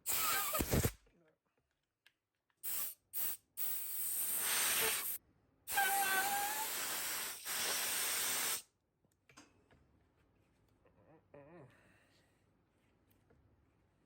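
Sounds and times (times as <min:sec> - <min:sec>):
hissing pressurised spray: 0:02.6 - 0:08.6.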